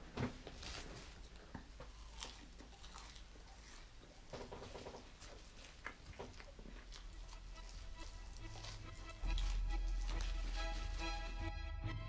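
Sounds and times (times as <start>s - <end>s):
person chewing fries: 0.6s - 11.5s.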